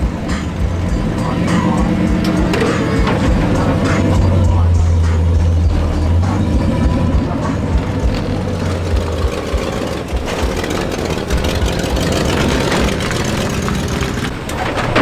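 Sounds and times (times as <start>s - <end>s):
vehicle engines running: 0.0s - 15.0s.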